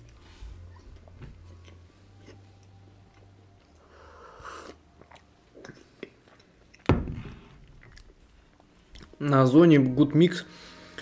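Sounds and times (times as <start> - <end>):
chewing a cookie: 0.0 - 6.9, 7.6 - 9.3.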